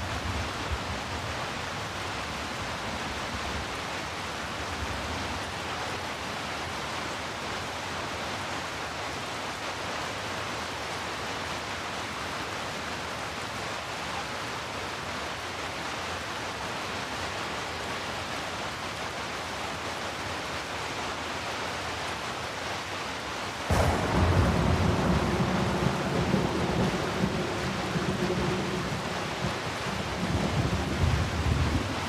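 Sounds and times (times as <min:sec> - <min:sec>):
rain hissing: 0:23.5 - 0:32.0
thunderclap rumbling: 0:23.7 - 0:32.0.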